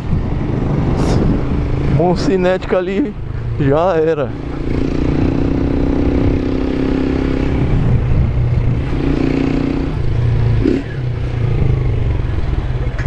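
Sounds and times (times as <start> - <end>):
wind rumbling on microphone: 0.0 - 13.0
motorcycle engine running: 3.2 - 13.0.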